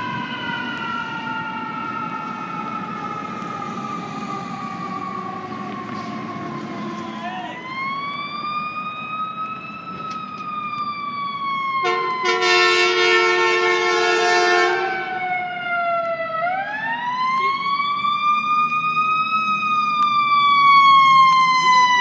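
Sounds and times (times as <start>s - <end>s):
fire engine siren wailing: 0.0s - 22.0s
horn blast: 11.8s - 15.0s.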